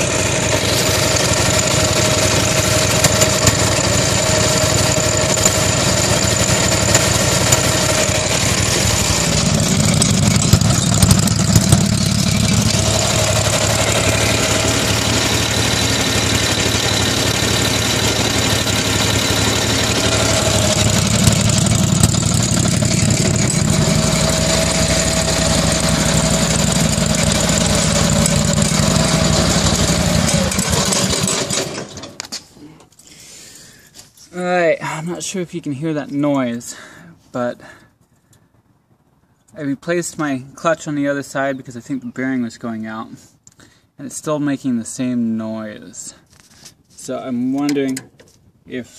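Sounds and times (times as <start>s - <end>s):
tractor engine running: 0.0s - 32.2s
mechanical clutch noise: 0.6s - 32.2s.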